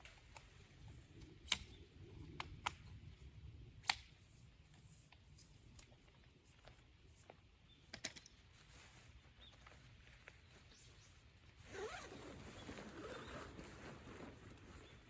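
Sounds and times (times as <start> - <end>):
zipper being drawn: 11.6 - 14.4.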